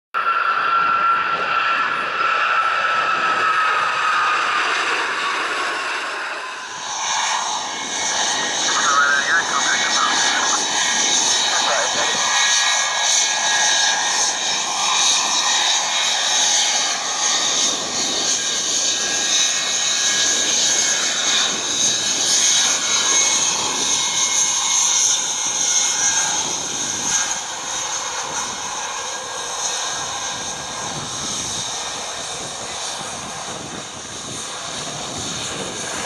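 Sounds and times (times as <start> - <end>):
jet engines during takeoff: 0.2 - 36.0
high whining tones: 6.3 - 12.8.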